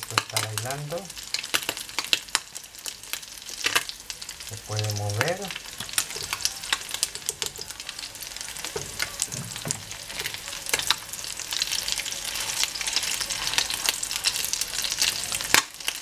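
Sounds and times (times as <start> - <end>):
fritters sizzling in hot oil: 0.0 - 16.0
plastic spatulas turning food: 5.6 - 15.6.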